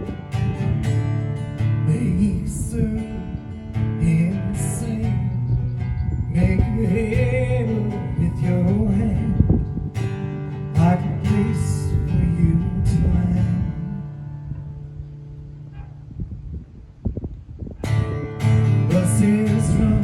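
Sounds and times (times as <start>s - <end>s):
acoustic guitar strumming: 0.0s - 16.2s, 17.8s - 20.0s.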